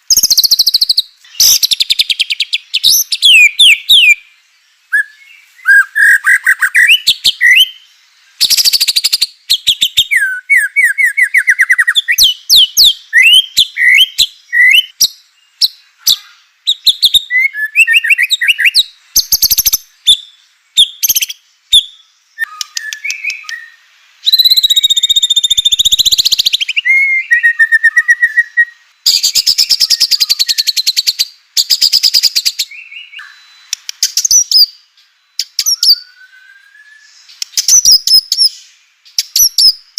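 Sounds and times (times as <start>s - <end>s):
songbird singing whistled trills: 0.0s - 39.9s.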